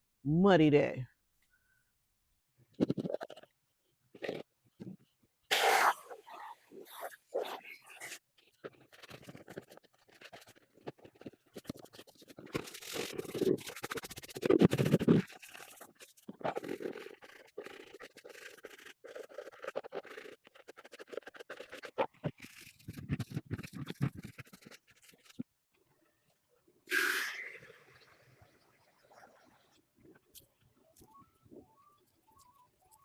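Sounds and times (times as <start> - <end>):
scrubbing and scraping container: 5.6 - 25.4.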